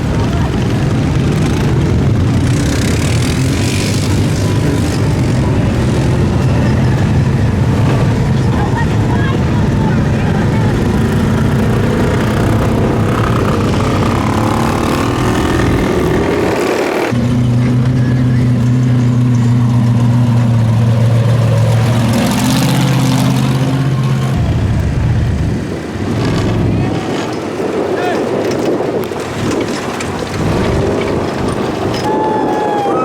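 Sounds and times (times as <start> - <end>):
truck engines running loudly: 0.0 - 33.0.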